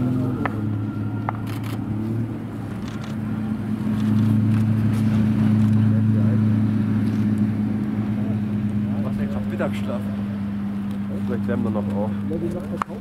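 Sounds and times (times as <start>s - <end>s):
sports car engine running: 0.0s - 13.0s.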